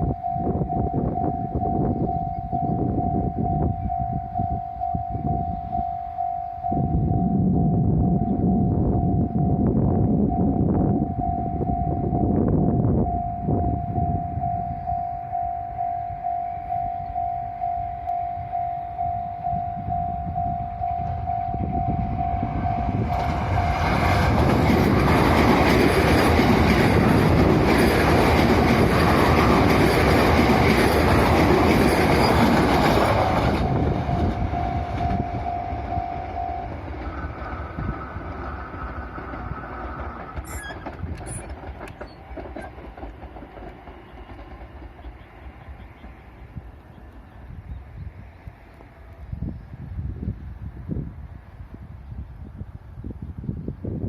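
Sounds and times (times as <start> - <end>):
level-crossing alarm dinging: 0.0 - 24.7, 27.2 - 37.3
electric train passing: 0.0 - 52.0.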